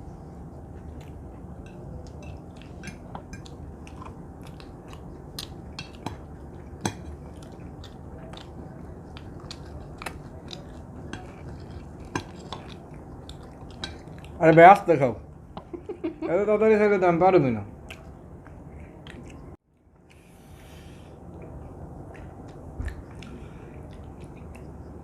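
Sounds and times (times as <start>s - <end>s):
chewing: 0.6s - 14.8s, 17.8s - 20.3s, 21.2s - 25.0s
cutlery clinking on plates: 1.6s - 3.5s.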